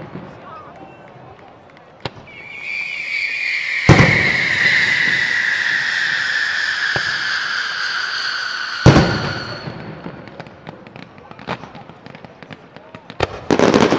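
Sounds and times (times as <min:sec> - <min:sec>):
small firework crack: 0:00.0 - 0:13.9
loud firework shell bursts: 0:02.0 - 0:11.7
firework whistle falling in pitch: 0:02.2 - 0:10.2.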